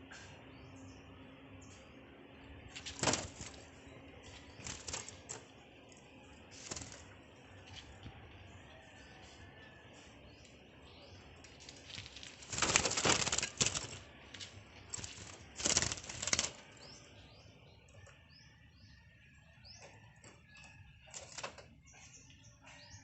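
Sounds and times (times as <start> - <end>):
birds flapping wings: 2.7 - 5.5, 6.5 - 7.8, 11.4 - 16.9.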